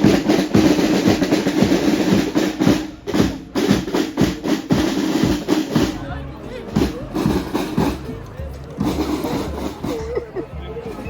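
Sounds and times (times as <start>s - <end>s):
snare drum rolls: 0.0s - 6.0s, 6.8s - 8.1s, 8.8s - 10.1s
bass drum beats: 0.0s - 11.0s.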